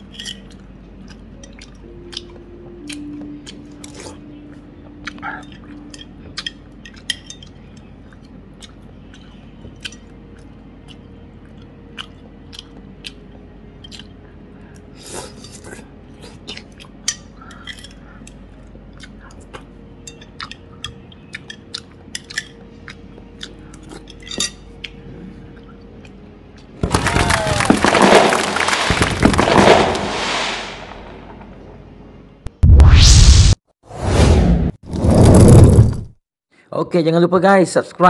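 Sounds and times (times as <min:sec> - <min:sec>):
chewing crunchy food: 0:00.0 - 0:26.7.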